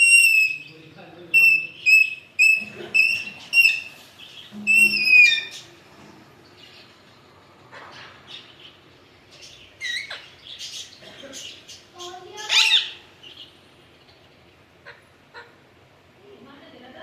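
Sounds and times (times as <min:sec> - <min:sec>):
faint bird chirps: 0:00.0 - 0:00.8, 0:01.4 - 0:05.8
parakeet whistled calls: 0:00.0 - 0:05.6, 0:12.4 - 0:13.0.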